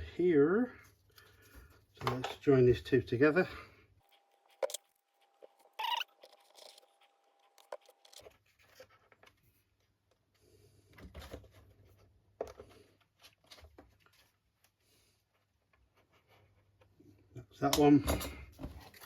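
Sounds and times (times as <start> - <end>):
model parts clicking and scraping: 4.1 - 9.4.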